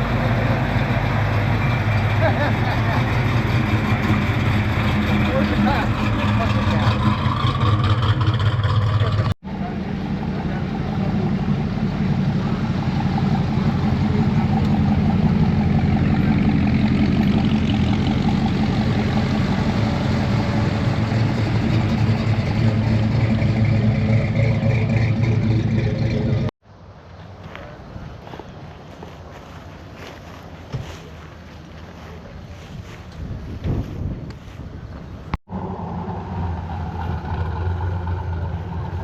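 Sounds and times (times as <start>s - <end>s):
car engine running: 0.0s - 26.5s.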